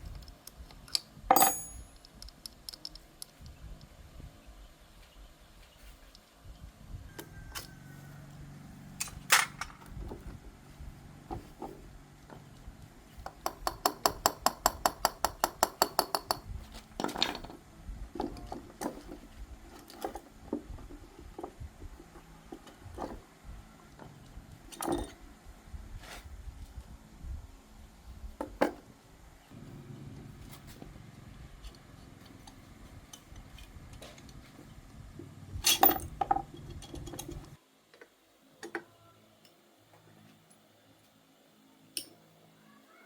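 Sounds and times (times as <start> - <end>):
metal tools clinking: 1.3 - 2.2, 35.6 - 37.4.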